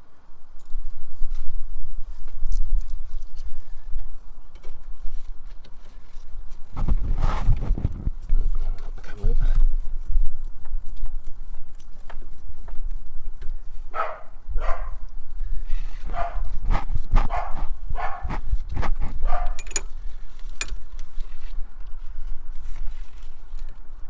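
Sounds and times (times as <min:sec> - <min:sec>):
dog barking: 0:13.9 - 0:15.0, 0:16.1 - 0:16.5, 0:17.3 - 0:18.4, 0:19.2 - 0:19.6.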